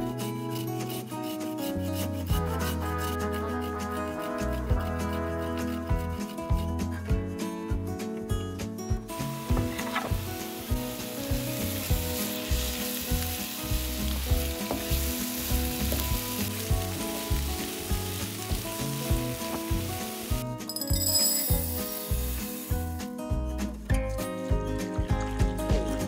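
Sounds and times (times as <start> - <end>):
food sizzling in a hot pan: 9.2 - 22.9
stirring in a pan: 9.6 - 20.4.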